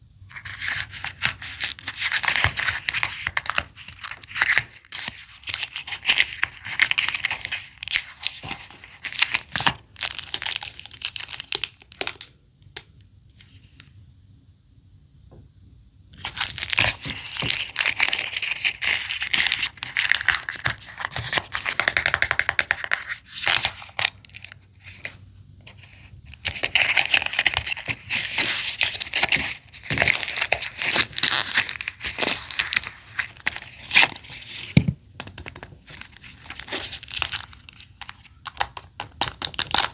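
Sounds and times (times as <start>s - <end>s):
plastic wrappers crinkling and tearing: 25.8s - 39.9s.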